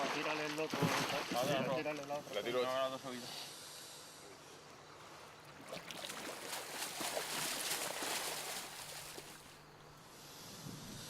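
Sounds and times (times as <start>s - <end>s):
water splashing and sloshing: 0.0s - 2.4s, 4.6s - 9.7s.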